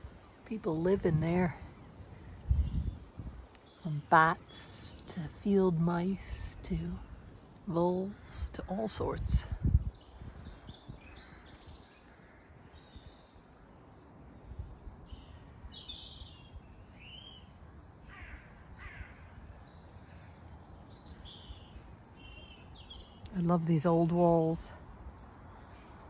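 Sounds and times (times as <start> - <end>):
faint bird calls: 15.1 - 20.4.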